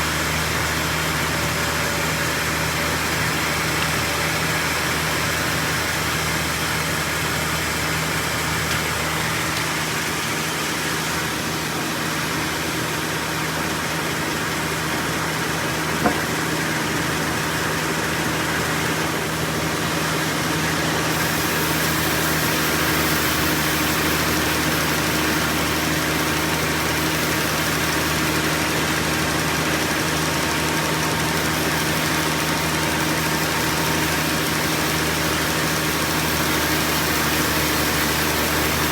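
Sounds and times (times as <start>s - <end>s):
sawmill machinery humming: 0.0s - 38.9s.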